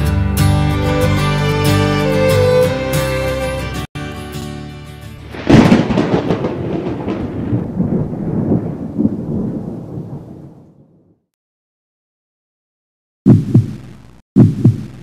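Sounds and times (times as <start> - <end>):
music track: 0.0 - 5.9
thunder clap rumbling: 5.2 - 11.3.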